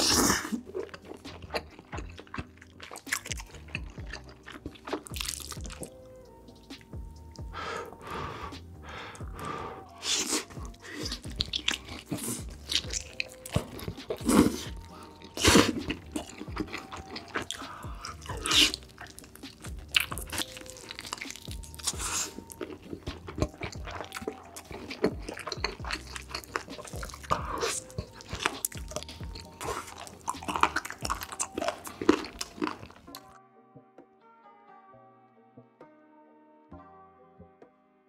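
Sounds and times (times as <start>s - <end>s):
close chewing and crunching: 0.0s - 6.0s, 6.6s - 33.4s
soft background music: 0.0s - 38.0s.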